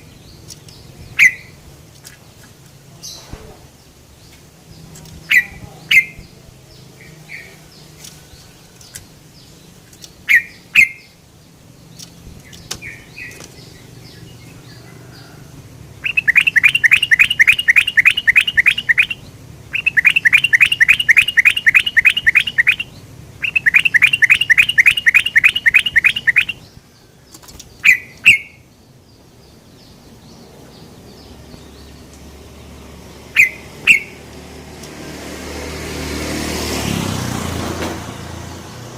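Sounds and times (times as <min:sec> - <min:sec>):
bulbul calling: 0:00.0 - 0:01.6, 0:05.0 - 0:06.4, 0:10.0 - 0:11.2, 0:16.0 - 0:26.8, 0:27.7 - 0:28.7, 0:33.3 - 0:34.3.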